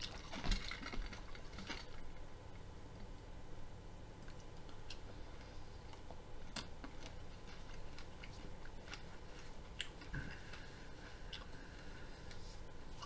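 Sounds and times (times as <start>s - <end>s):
person chewing crunchy broccoli: 6.0s - 11.8s.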